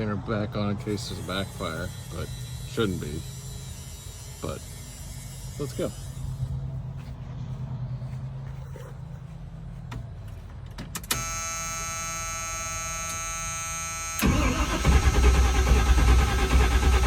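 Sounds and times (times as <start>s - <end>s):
truck engine cranking: 9.9s - 13.4s, 14.0s - 17.0s.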